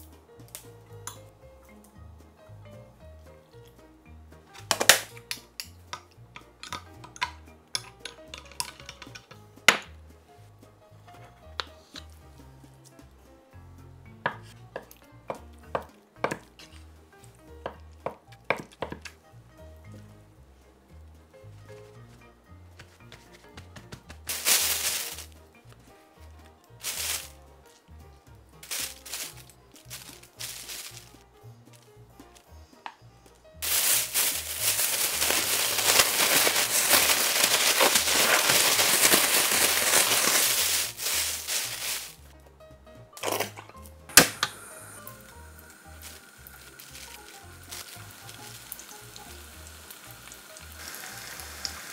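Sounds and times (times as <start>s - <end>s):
food sizzling in hot oil: 33.6s - 42.2s, 44.2s - 51.9s.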